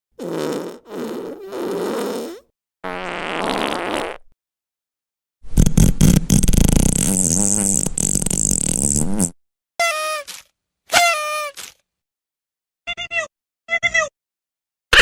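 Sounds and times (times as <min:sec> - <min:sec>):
farts: 0:00.2 - 0:04.4, 0:05.5 - 0:09.4.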